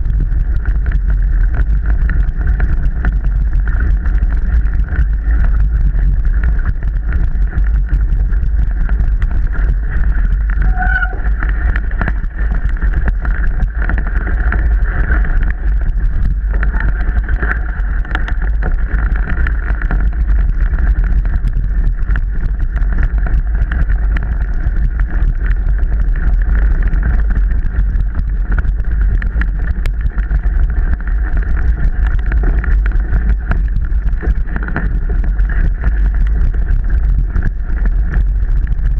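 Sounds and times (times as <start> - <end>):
bike rattling over rough trail: 0.0 - 38.9
wind buffeting microphone: 0.0 - 38.9.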